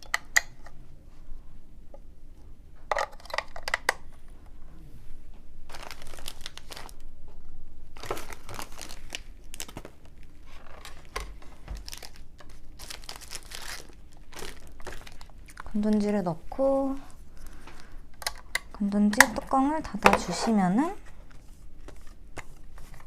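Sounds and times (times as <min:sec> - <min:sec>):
plastic packaging crinkling and tearing: 0:05.7 - 0:07.1, 0:07.9 - 0:17.5.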